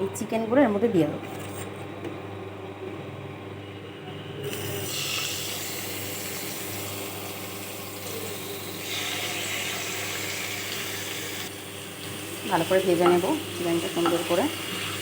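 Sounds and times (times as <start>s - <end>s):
chicken frying in hot oil: 4.5s - 15.0s.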